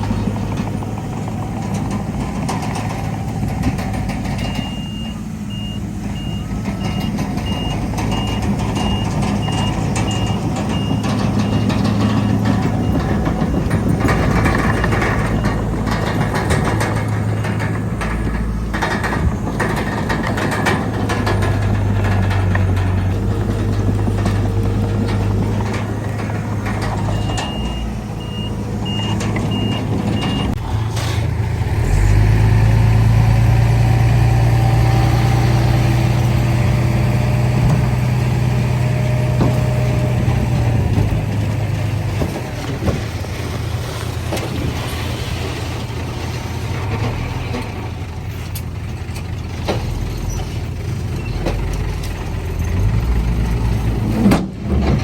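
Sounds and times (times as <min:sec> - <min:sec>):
diesel earthmoving machinery running: 0:00.0 - 0:55.0
reversing alarm beeping: 0:04.3 - 0:13.2, 0:27.0 - 0:30.6.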